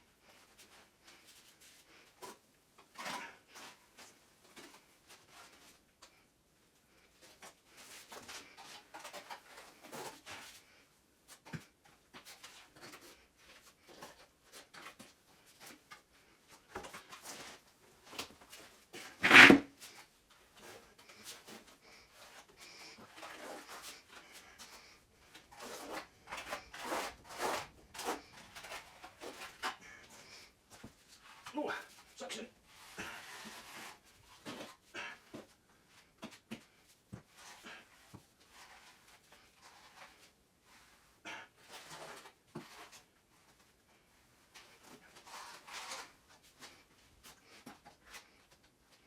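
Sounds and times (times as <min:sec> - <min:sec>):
swishing scraping of wet compound: 0:19.2 - 0:19.6.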